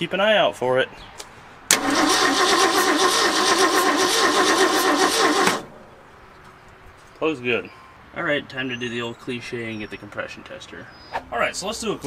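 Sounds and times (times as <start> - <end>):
engine cranking on starter: 1.7 - 5.7.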